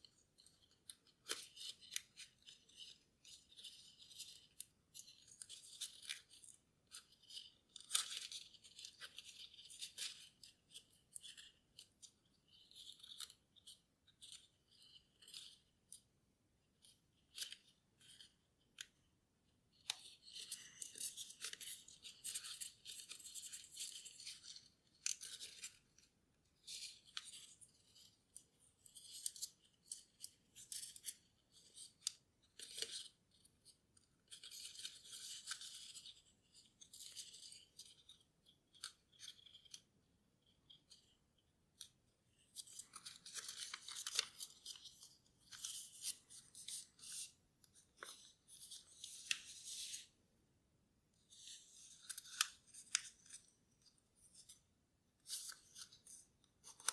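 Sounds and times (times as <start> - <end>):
paper rustling and crinkling: 19.9 - 33.1, 42.5 - 50.1.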